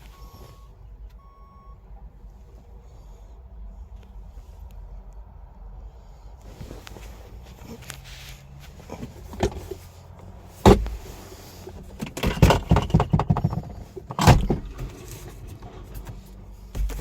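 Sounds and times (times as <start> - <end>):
car door clunks: 10.6 - 11.1, 11.9 - 15.2, 16.1 - 17.0.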